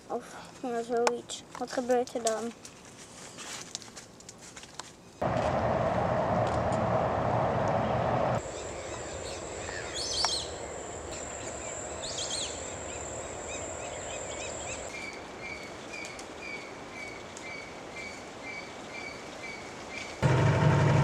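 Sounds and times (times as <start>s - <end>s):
wild birds calling: 7.8s - 19.7s
high-pitched insect whine: 8.4s - 14.9s.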